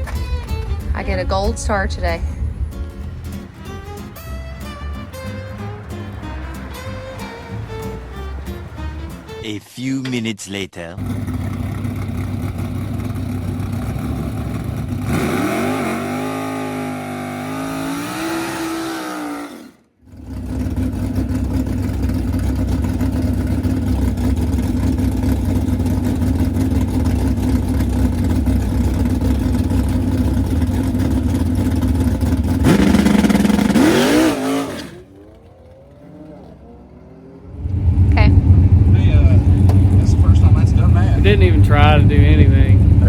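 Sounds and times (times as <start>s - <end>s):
race car engine revving: 0.0s - 9.4s, 11.0s - 43.0s.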